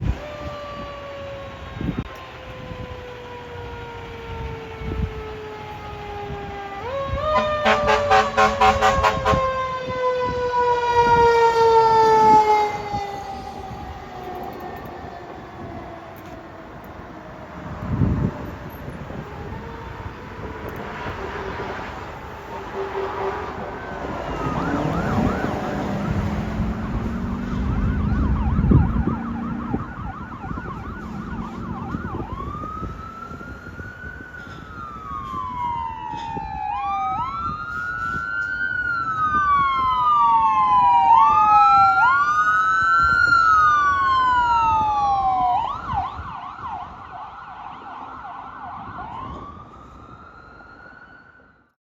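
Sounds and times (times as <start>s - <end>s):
heavy truck rumble: 0.0s - 40.0s
fire engine siren: 0.0s - 51.8s.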